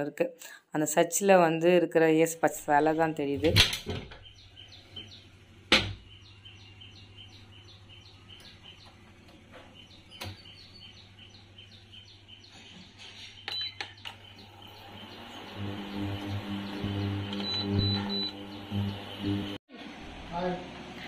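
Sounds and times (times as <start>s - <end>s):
bird chirping: 3.8s - 19.6s.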